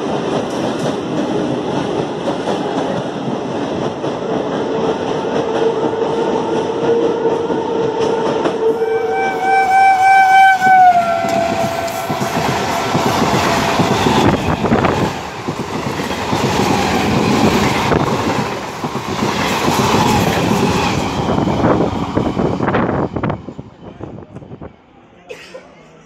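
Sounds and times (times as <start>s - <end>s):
train wheels clattering over rail joints: 0.0s - 7.0s, 11.1s - 22.8s
train horn: 4.8s - 14.6s.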